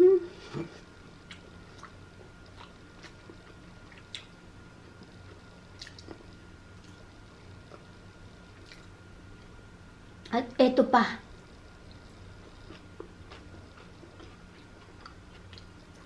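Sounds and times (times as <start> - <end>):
chewing and wet lip smacks: 1.3 - 4.4, 5.8 - 6.2, 8.6 - 8.9.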